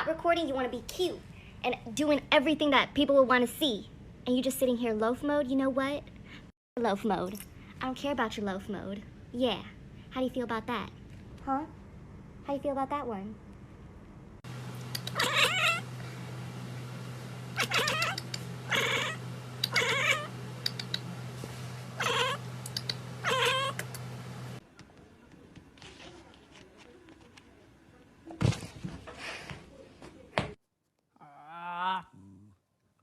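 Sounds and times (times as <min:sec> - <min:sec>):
steady low hum: 0:13.5 - 0:24.6
cat meowing: 0:15.1 - 0:15.8, 0:17.6 - 0:20.3, 0:22.0 - 0:22.4, 0:23.2 - 0:23.8.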